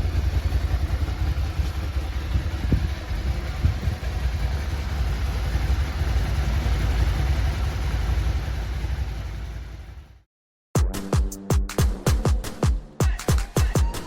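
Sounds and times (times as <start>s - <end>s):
motorcycle engine idling: 0.0s - 10.2s.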